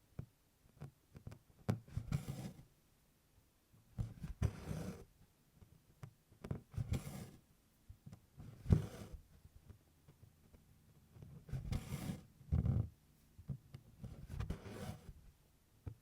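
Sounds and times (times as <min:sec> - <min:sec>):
soft needle taps: 0:05.6 - 0:06.6, 0:13.4 - 0:14.2.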